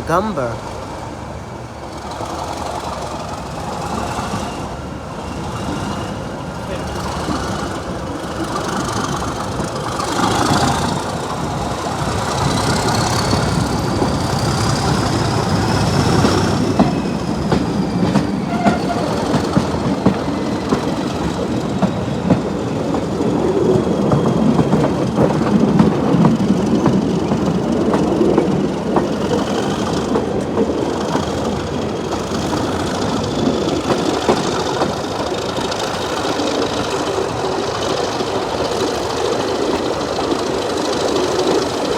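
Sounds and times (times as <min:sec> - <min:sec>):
train engine and wheel rumble: 0:00.0 - 0:41.9
wheels clicking over rail joints: 0:01.1 - 0:41.9.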